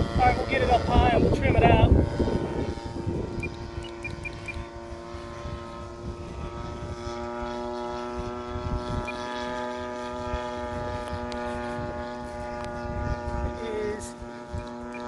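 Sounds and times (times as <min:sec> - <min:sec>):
model airplane propeller drone: 0:00.0 - 0:15.0
wind rumbling on microphone: 0:00.0 - 0:15.0.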